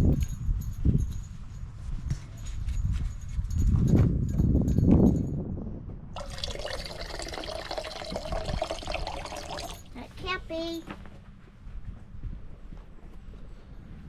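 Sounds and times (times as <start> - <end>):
water pouring into container: 6.2 - 9.9.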